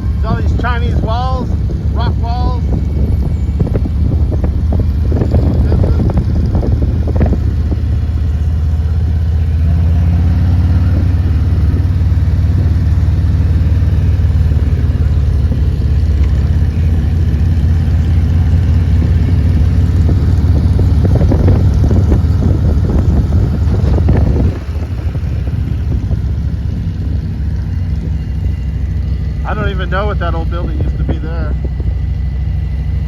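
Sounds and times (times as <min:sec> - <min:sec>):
motorcycle engine cruising: 0:00.0 - 0:33.0.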